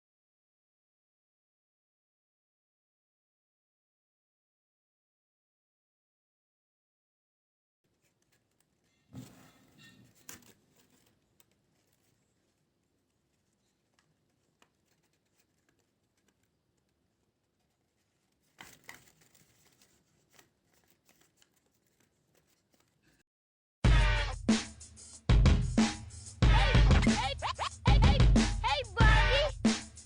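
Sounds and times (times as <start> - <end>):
paper rustling and crinkling: 7.9 - 23.2.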